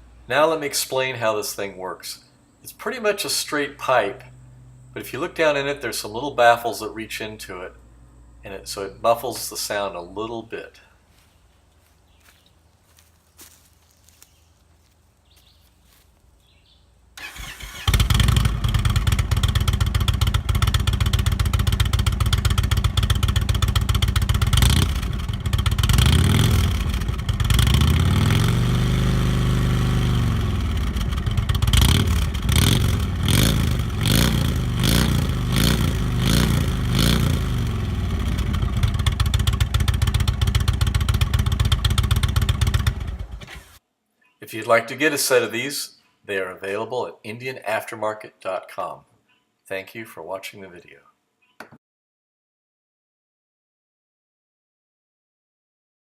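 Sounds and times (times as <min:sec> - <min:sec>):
motorcycle engine idling and revving: 0:17.2 - 0:43.8.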